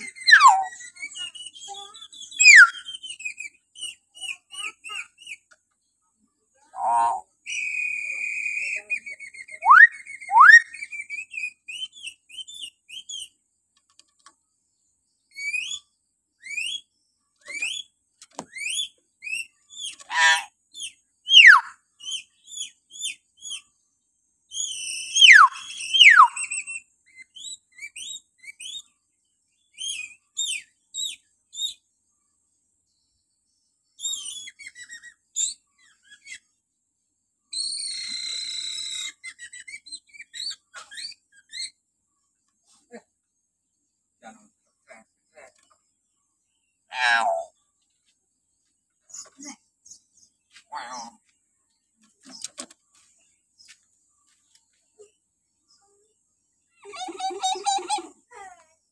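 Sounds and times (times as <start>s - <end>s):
myna chirps and whistles: 0.0s - 5.4s, 6.8s - 13.3s, 15.3s - 17.9s, 18.5s - 23.7s, 24.5s - 28.9s, 29.7s - 31.8s, 34.0s - 36.4s, 37.5s - 41.8s
myna falling whistles: 9.4s - 10.9s, 37.6s - 39.8s.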